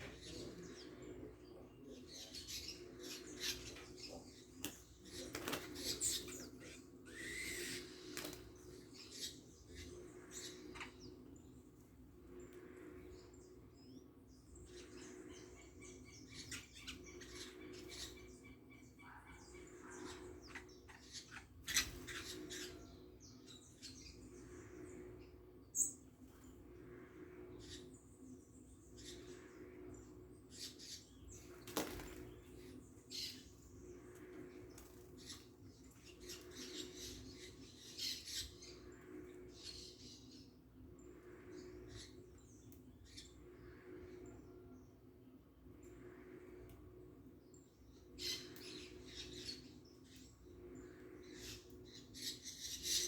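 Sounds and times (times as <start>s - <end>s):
faint low hum: 0.0s - 53.0s
small birds chirping: 0.0s - 53.0s.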